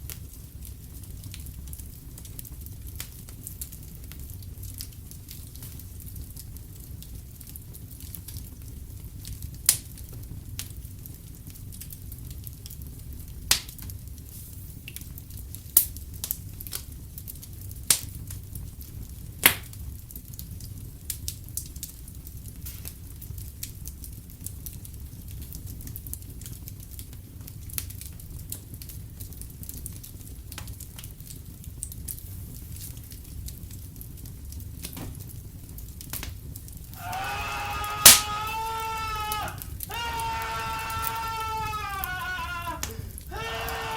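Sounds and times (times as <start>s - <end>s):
fire popping: 0.0s - 43.9s
wood fire crackling: 0.0s - 43.9s.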